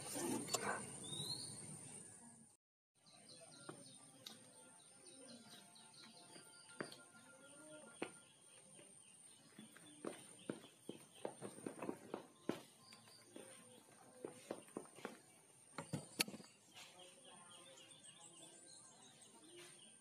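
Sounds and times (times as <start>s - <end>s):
faint birds chirping: 0.0s - 20.0s
footsteps on concrete: 6.0s - 17.4s.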